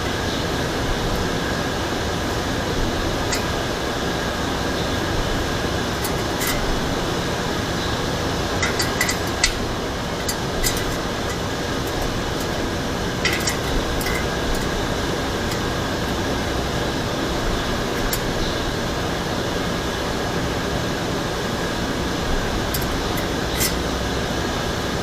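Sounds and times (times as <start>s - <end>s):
fan-like background noise: 0.0s - 25.0s
metallic clicks of hand tools: 6.0s - 6.7s, 8.6s - 12.6s, 13.2s - 14.8s, 22.7s - 23.9s.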